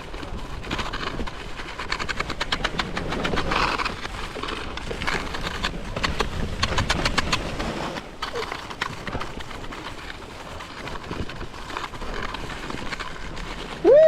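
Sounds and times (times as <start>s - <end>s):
sharp clicks and knocks: 0.0s - 13.6s
ski scraping over snow: 0.0s - 14.0s.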